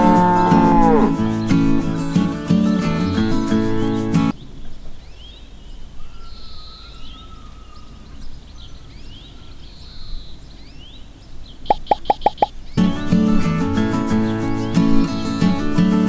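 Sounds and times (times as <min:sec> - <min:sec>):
background hiss: 0:00.0 - 0:16.0
birds chirping: 0:03.0 - 0:13.1, 0:14.1 - 0:15.6.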